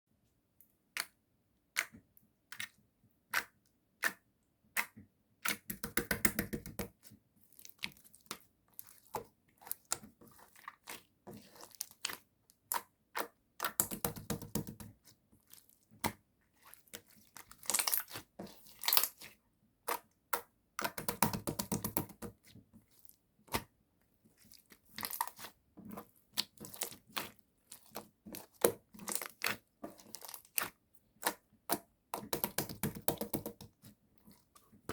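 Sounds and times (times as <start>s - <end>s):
slime crackling squishes: 7.4s - 34.9s.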